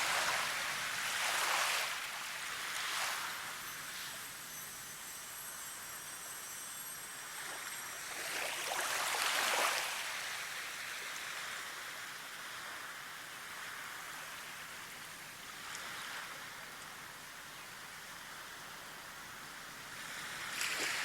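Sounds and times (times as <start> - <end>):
rushing water: 0.0 - 4.6.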